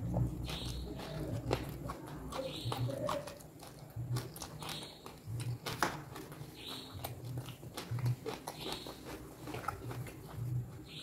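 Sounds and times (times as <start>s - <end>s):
chewing raw vegetables: 0.0s - 11.0s.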